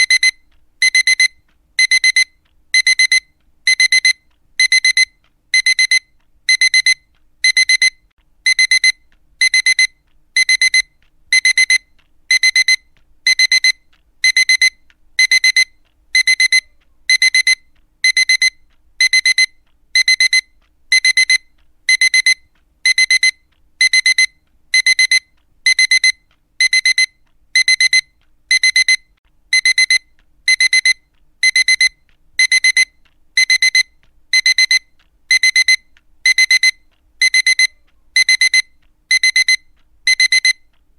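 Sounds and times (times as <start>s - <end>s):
alarm clock beeping: 0.0s - 40.8s.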